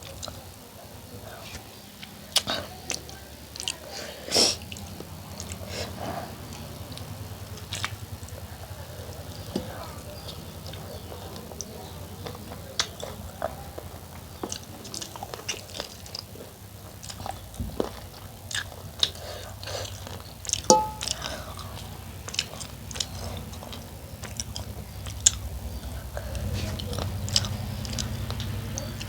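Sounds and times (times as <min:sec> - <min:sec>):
person chewing and biting: 0:14.5 - 0:21.7, 0:22.3 - 0:28.8
ringing clink: 0:20.7 - 0:21.1.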